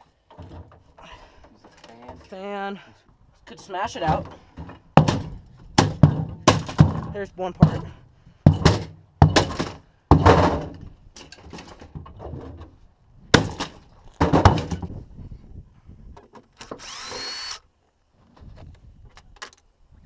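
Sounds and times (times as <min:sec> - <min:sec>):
heavy knocks with clattering: 0:04.0 - 0:12.7, 0:13.3 - 0:15.0.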